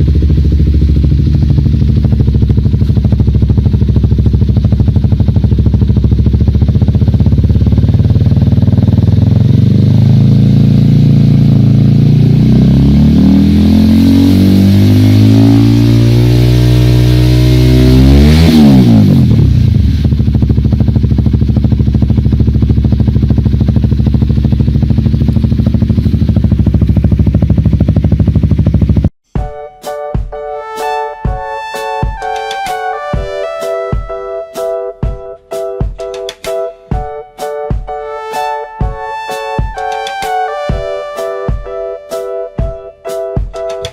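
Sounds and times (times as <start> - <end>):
motorcycle engine revving: 0.0 - 29.2
music: 29.2 - 43.9.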